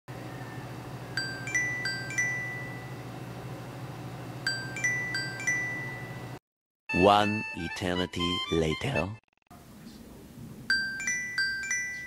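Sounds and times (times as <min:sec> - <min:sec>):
bell-like chime tune: 0:01.2 - 0:03.0, 0:04.5 - 0:06.3, 0:10.7 - 0:12.0.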